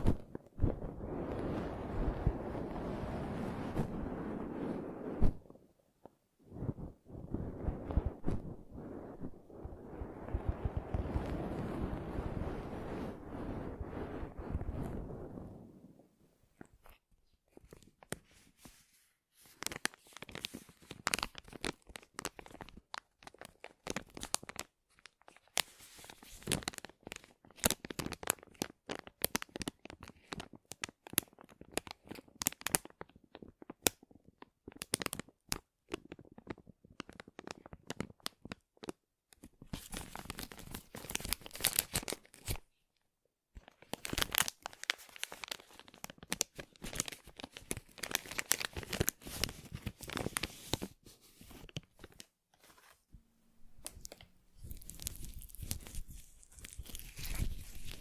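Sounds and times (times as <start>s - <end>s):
crinkling handling sounds: 16.5s - 42.8s, 43.5s - 58.0s.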